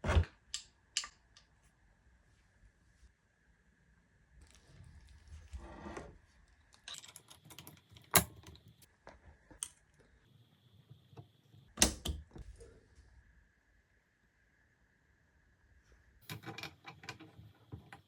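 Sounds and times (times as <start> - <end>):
metal parts clicking and rattling: 6.7 - 8.9, 16.2 - 18.0.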